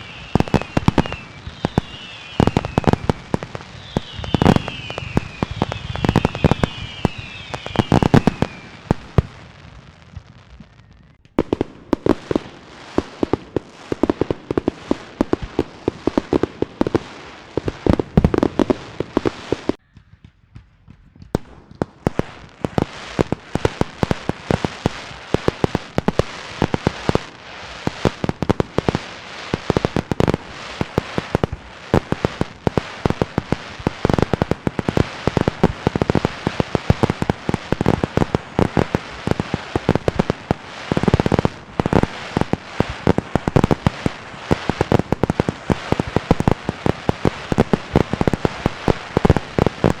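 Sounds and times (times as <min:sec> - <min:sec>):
falling firework whistles: 0:00.0 - 0:11.2
firecrackers banging and crackling: 0:00.0 - 0:50.0.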